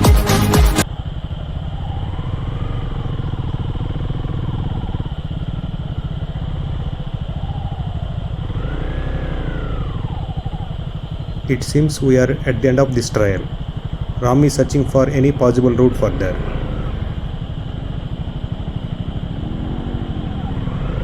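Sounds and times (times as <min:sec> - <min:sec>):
dance music: 0:00.0 - 0:00.8
motorcycle engine idling: 0:00.0 - 0:21.0
faint rising and falling tones: 0:00.8 - 0:21.0.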